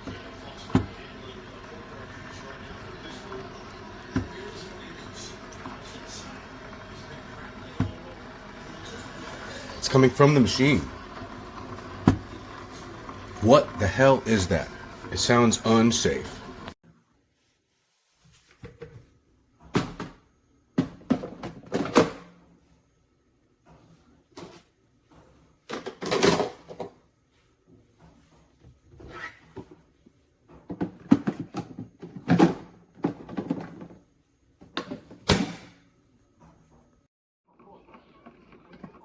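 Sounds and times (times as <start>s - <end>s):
coffee maker knocking and rattling: 0.0s - 16.7s, 20.8s - 22.1s, 30.6s - 34.0s.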